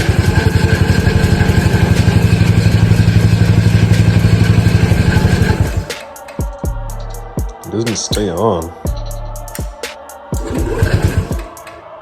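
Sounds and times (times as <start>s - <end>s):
scooter engine fast idle: 0.0s - 6.1s, 10.4s - 11.7s.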